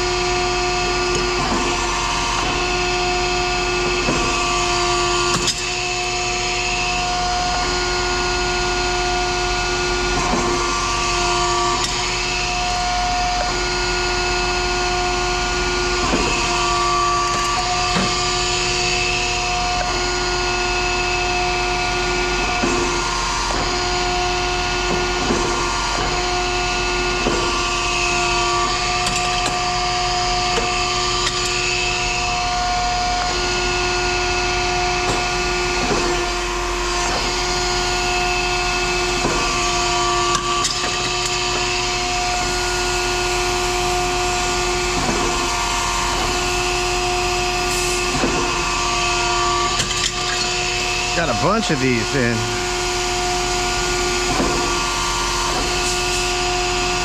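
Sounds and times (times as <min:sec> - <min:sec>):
machine humming: 0:50.4 - 0:57.0.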